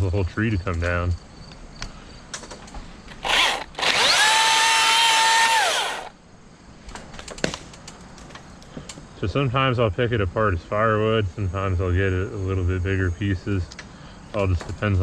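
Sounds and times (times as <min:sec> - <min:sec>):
electric chainsaw whine: 0:03.1 - 0:06.2.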